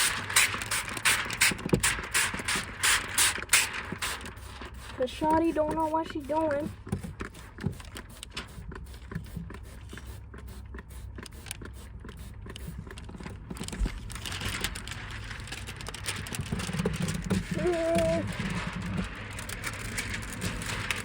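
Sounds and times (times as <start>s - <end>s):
plastic film crinkling: 0.0s - 6.7s, 12.7s - 21.0s.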